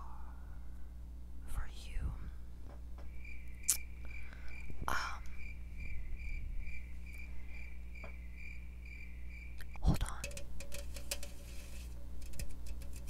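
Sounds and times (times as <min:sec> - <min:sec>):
cricket chirping: 0:03.0 - 0:11.4
handling rustle: 0:10.2 - 0:13.0.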